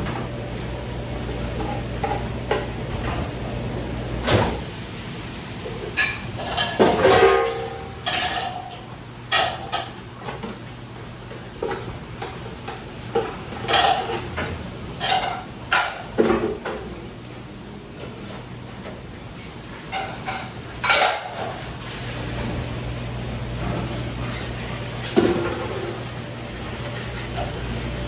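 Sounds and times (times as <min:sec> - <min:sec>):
dishes and metal pans clattering: 0:05.7 - 0:10.6, 0:11.6 - 0:16.9, 0:18.0 - 0:22.7, 0:23.6 - 0:28.0.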